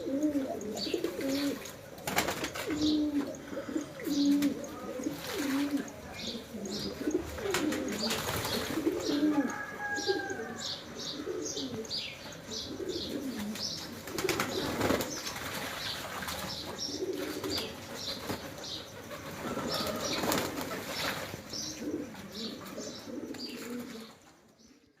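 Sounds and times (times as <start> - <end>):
pigeons cooing: 0.0 - 24.3
small birds chirping: 0.0 - 25.0
wings flapping: 2.0 - 2.8, 7.4 - 9.1, 13.4 - 16.6, 17.2 - 21.5.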